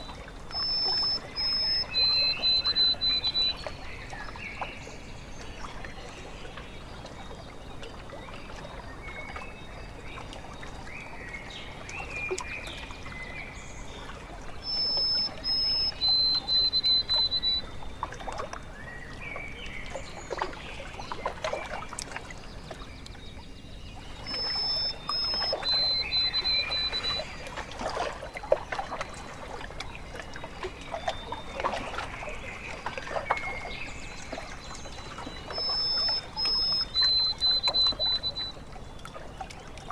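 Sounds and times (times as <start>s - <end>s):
whistled bird phrase: 0.0s - 3.8s, 14.6s - 17.8s, 24.2s - 27.4s, 34.6s - 38.6s
birds calling: 0.0s - 5.4s, 14.5s - 18.0s, 23.5s - 38.7s
small waves lapping: 0.0s - 39.9s.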